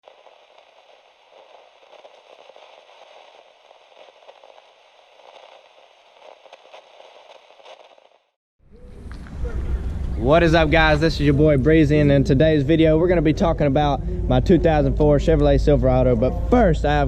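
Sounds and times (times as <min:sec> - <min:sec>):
faint crackling hiss: 0:00.0 - 0:13.0.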